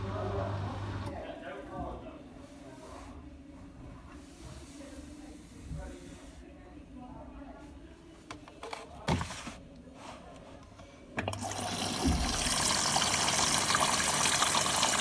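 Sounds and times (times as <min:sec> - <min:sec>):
water rushing into drum: 0:11.3 - 0:15.0.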